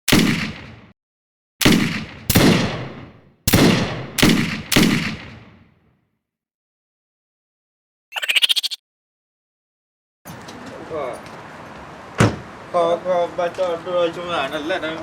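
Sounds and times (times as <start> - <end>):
gunshots echoing: 0.1 - 0.9, 1.6 - 5.8.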